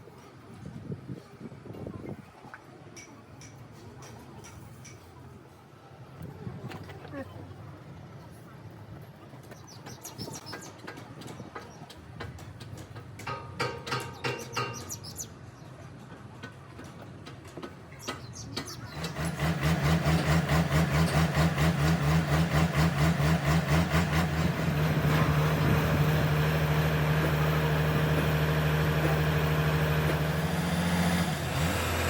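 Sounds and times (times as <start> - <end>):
scattered knocks: 9.9 - 15.0
diesel engine starting and running: 18.2 - 32.0.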